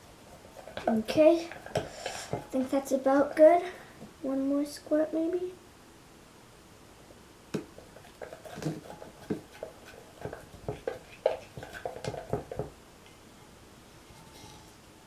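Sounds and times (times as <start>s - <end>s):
slime being stirred: 0.3s - 2.9s, 7.6s - 12.8s.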